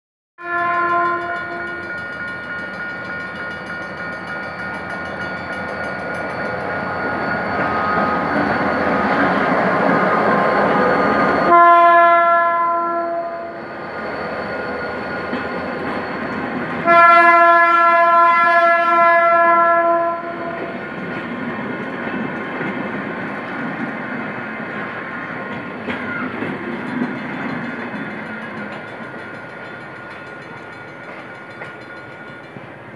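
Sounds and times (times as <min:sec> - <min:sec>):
train horn blasts: 0:00.4 - 0:02.0, 0:11.4 - 0:13.6, 0:16.8 - 0:20.8
diesel locomotive passing: 0:00.4 - 0:32.9
passenger coaches rolling past: 0:00.4 - 0:32.9.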